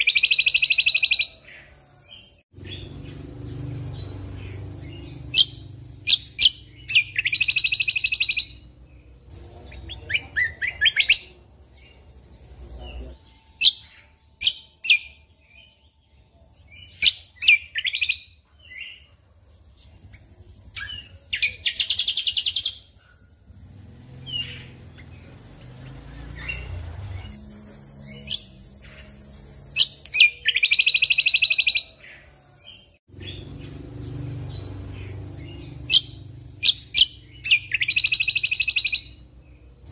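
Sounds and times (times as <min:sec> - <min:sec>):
bird rapid trill: 0:00.0 - 0:15.9, 0:19.8 - 0:39.9
bird chirping: 0:00.0 - 0:39.9.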